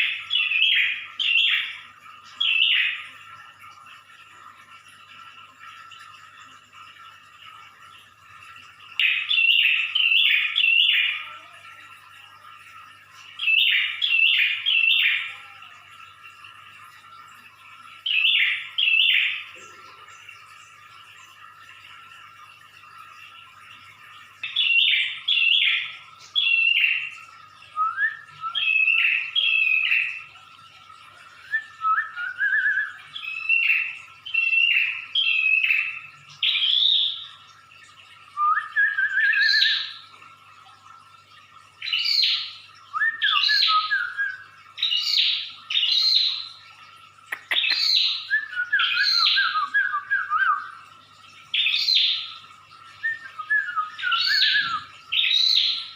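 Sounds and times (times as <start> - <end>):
faint steady hum: 0.0 - 55.9
bird harsh chirps and rattles: 47.2 - 49.6.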